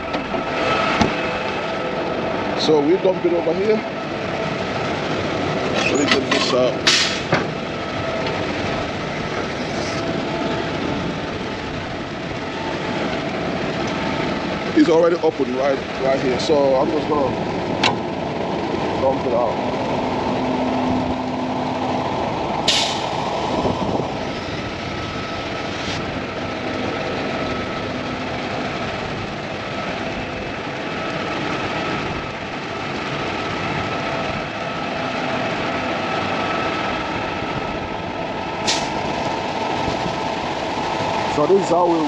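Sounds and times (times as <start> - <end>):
concrete mixer truck running: 0.0 - 42.0
sharp air hisses: 6.9 - 7.3.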